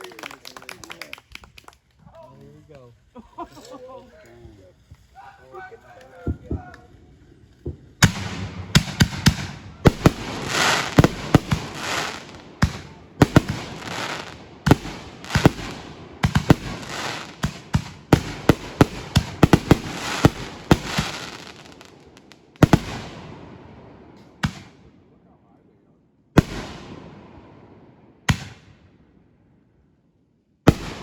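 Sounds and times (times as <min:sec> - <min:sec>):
fireworks crackling: 0:00.0 - 0:24.8, 0:30.7 - 0:31.0
fireworks bangs: 0:04.4 - 0:24.9, 0:26.4 - 0:28.9, 0:30.7 - 0:31.0.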